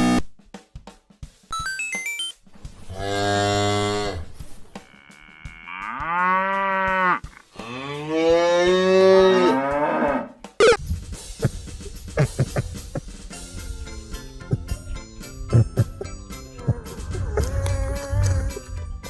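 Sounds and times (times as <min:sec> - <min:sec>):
cow mooing: 0:02.9 - 0:10.4.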